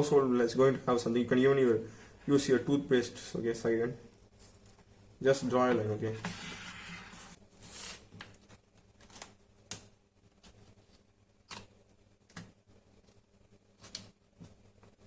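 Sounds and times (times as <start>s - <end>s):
short scrapes: 6.1s - 8.1s.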